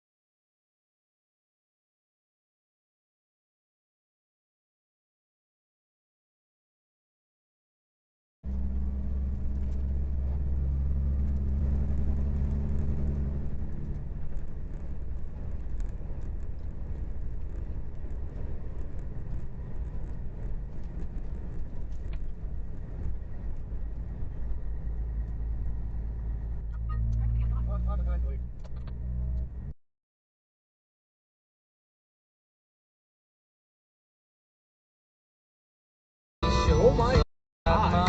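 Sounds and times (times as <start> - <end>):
road noise inside car cabin: 8.5 - 29.8
vehicle engine drone: 8.5 - 29.8, 36.4 - 38.0.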